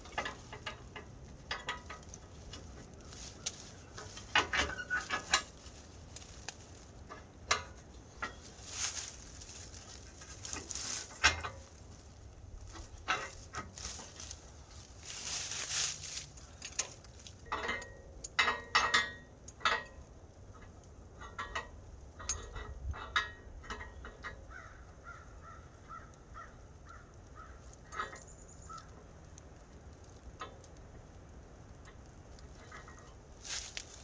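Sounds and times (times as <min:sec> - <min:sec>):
low steady rumble: 0:00.0 - 0:34.0.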